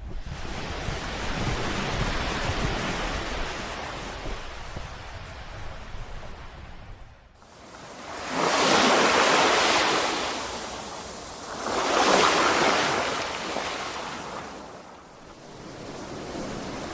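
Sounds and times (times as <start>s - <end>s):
sea waves washing onto shore: 7.4s - 16.9s.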